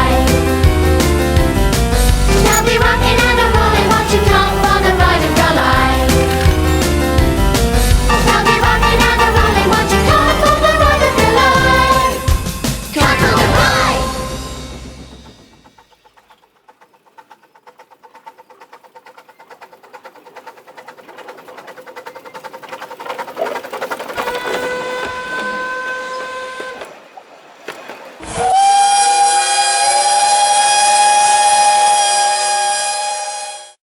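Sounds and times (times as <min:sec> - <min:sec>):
steam locomotive chuffing: 0:00.0 - 0:27.0
steam whistle: 0:24.2 - 0:26.9, 0:28.2 - 0:33.8.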